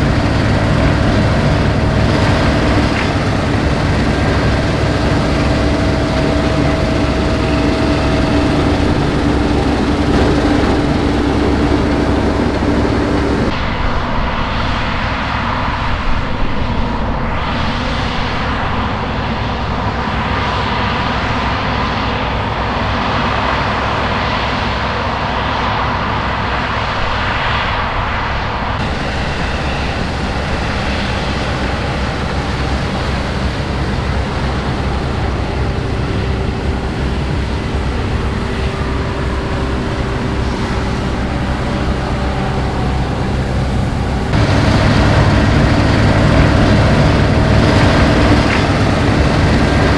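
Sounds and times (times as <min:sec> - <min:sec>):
combine harvester engine drone: 0:00.0 - 0:13.6, 0:28.8 - 0:49.9.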